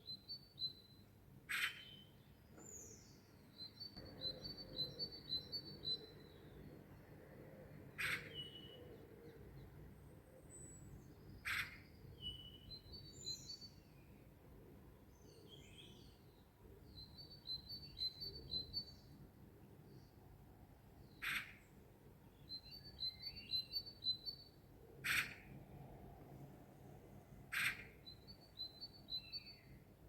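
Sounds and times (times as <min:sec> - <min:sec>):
small birds chirping: 0:01.5 - 0:07.1, 0:22.4 - 0:25.6, 0:27.4 - 0:30.0.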